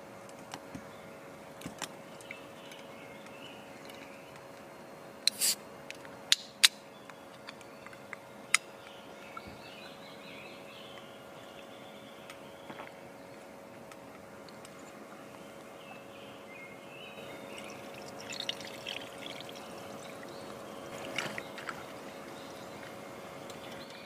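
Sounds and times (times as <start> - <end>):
faint birdsong: 0.0 - 5.2, 6.0 - 24.0
low hum: 0.0 - 24.0.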